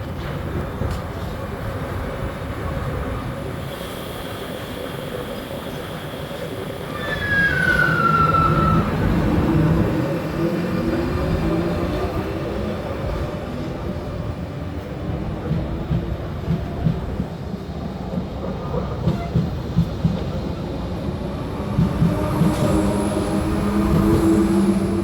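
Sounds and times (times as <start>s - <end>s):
train rumbling on rails: 0.0s - 25.0s
wheel squeal: 6.9s - 9.5s.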